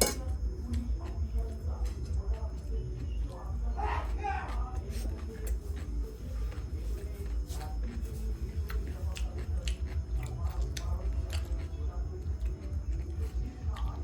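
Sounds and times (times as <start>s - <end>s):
person chewing noodles: 0.0s - 14.0s
wet mouth clicks: 8.6s - 11.7s.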